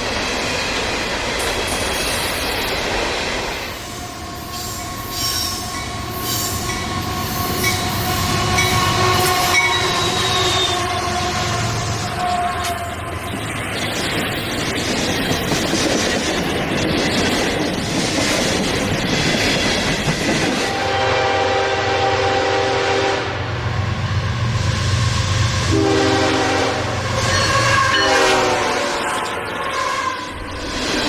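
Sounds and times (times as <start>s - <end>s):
train wheels clattering on rails: 0.0s - 10.0s, 12.6s - 20.9s
locomotive horn blasts: 7.6s - 12.9s, 20.7s - 23.6s, 25.7s - 30.2s.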